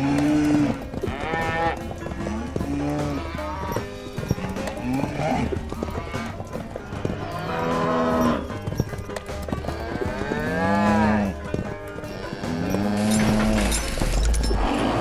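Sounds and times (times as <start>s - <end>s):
cow mooing: 7.2s - 8.5s, 9.8s - 11.4s.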